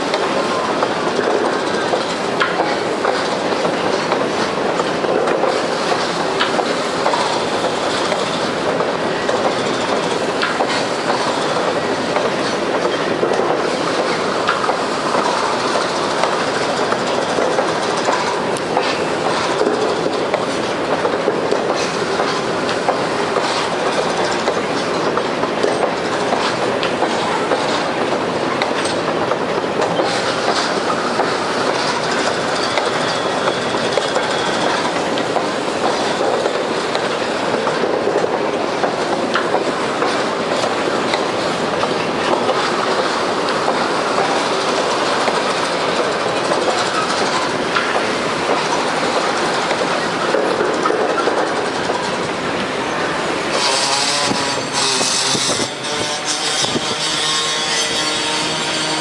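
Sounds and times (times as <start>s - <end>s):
freight train rolling past: 0.0s - 59.0s
wheels clicking over rail joints: 0.1s - 59.0s.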